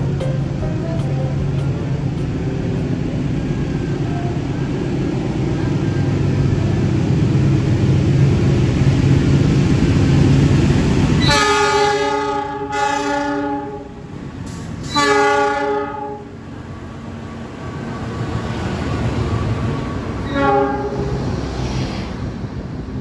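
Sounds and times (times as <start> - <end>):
train rumbling past: 0.0 - 23.0
train horn blasts: 11.2 - 14.1, 14.8 - 16.4, 20.2 - 21.3.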